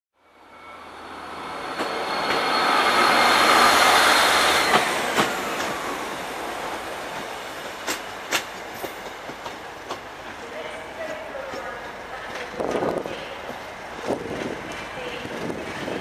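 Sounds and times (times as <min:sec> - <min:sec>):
high wheel squeal: 0:00.4 - 0:06.1
train rumble: 0:00.9 - 0:16.0.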